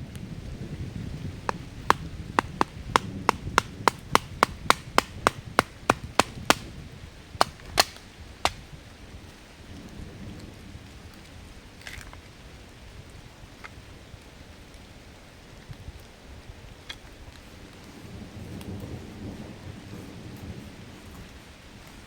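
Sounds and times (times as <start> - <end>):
tool knocking on wood: 1.5 - 6.6, 7.4 - 8.6.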